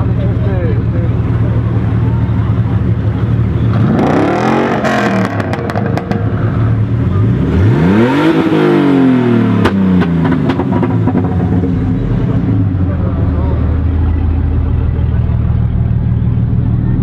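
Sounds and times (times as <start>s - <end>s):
car engine idling and revving: 0.0s - 17.0s
exhaust cracks: 0.0s - 17.0s.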